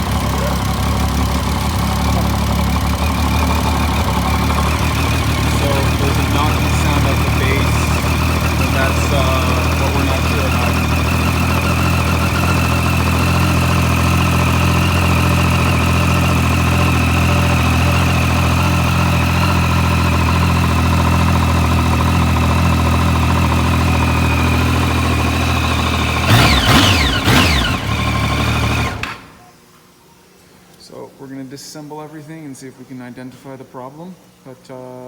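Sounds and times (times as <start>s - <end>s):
engine revving: 0.0s - 29.4s
motorcycle engine idling: 0.0s - 29.4s
engine thumping knock: 0.6s - 13.2s.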